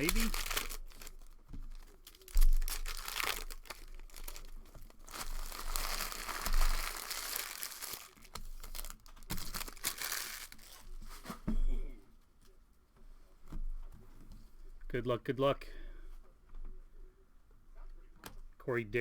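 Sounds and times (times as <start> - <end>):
wrapper crinkling and tearing: 0.0 - 11.2.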